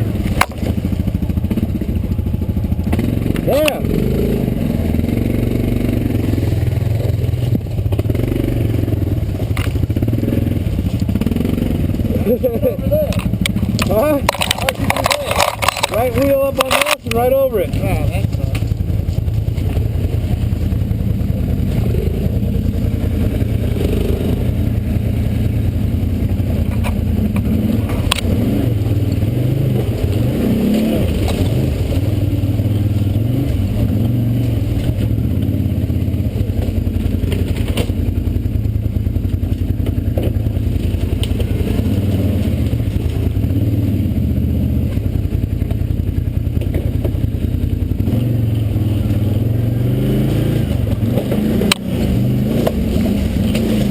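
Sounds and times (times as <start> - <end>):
off-road vehicle engine running: 0.0 - 53.9
knocks and scrapes on rock: 13.0 - 17.1.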